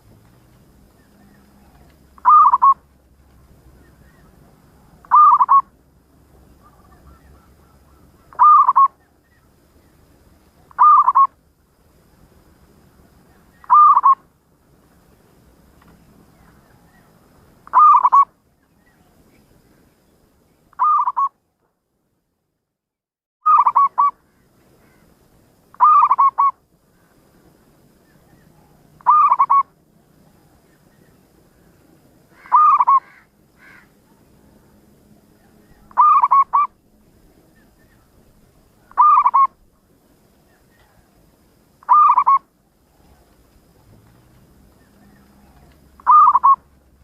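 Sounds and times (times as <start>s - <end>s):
dove cooing: 1.0s - 2.9s, 3.9s - 5.7s, 6.6s - 9.0s, 10.6s - 11.3s, 13.6s - 14.2s, 17.7s - 18.3s, 20.8s - 21.3s, 23.5s - 24.1s, 25.8s - 26.6s, 28.3s - 29.8s, 32.4s - 33.8s, 35.4s - 36.8s, 38.8s - 39.6s, 41.8s - 46.8s.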